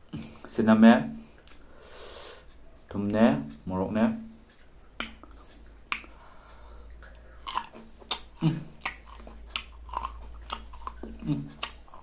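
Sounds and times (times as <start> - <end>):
crunchy biting and chewing fruit: 6.8 - 12.0.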